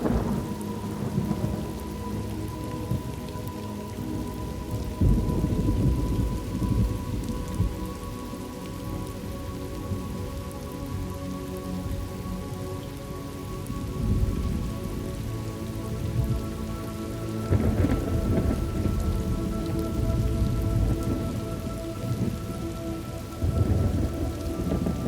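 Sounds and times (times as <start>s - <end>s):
thunder rumbling: 0.0s - 3.3s, 3.9s - 8.2s, 13.8s - 15.4s, 16.0s - 25.0s
steady rain: 0.0s - 25.0s.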